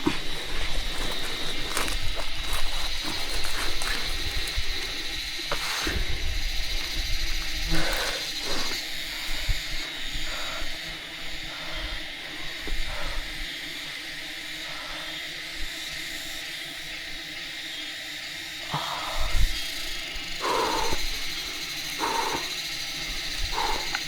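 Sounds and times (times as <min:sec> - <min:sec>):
steady high-pitched hiss: 0:00.0 - 0:24.0.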